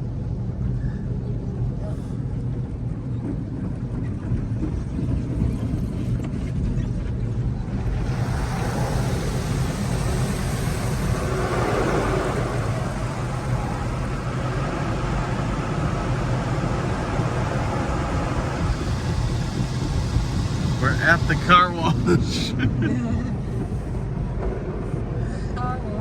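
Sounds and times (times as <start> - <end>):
low rumble inside car: 0.0 - 26.0
car wash equipment rushing hiss: 7.3 - 25.4.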